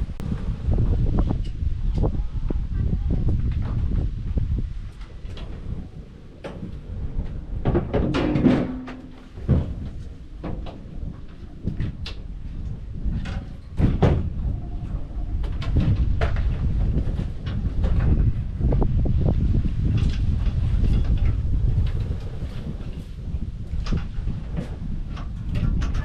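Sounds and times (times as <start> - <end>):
steady low rumble: 0.0 - 26.0
knocks and clunks: 3.3 - 22.0.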